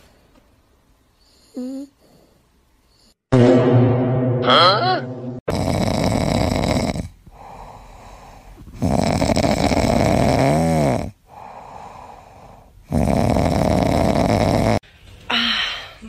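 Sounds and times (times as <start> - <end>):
puppy snoring: 1.2 - 3.2, 5.5 - 14.8.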